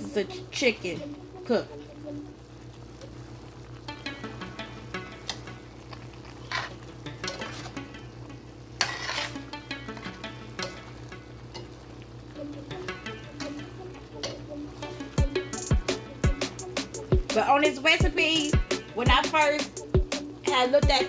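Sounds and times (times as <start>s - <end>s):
chicken sizzling in a frying pan: 2.3s - 3.9s
utensil scraping a pan: 8.8s - 9.5s.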